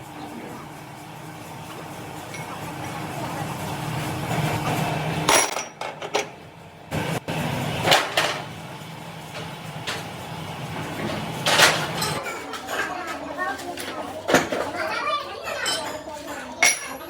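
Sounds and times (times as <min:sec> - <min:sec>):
machinery humming: 0:00.0 - 0:12.2.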